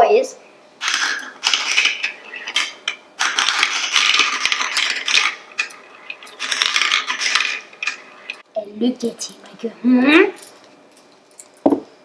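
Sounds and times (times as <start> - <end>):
plastic pieces clattering: 0.8 - 8.4.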